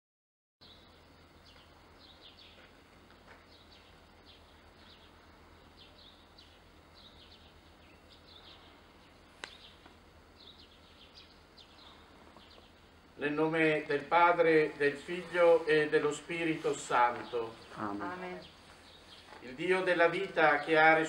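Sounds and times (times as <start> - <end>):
low hum: 0.6 - 21.0
small birds chirping: 0.6 - 21.0
sharp click: 9.4 - 9.6.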